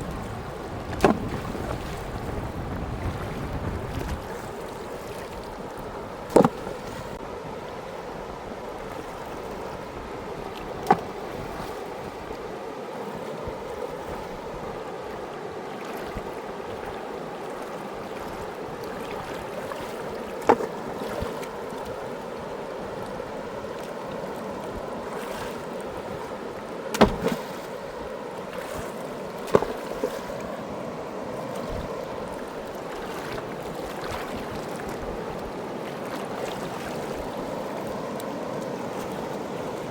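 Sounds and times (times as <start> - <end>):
sharp knocks: 27.0 - 27.4.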